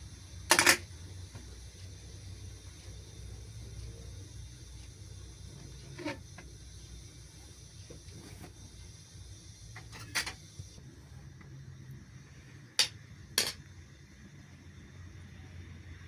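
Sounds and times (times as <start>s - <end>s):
kitchenware clinking: 0.5s - 0.8s, 9.8s - 10.4s, 12.8s - 13.6s.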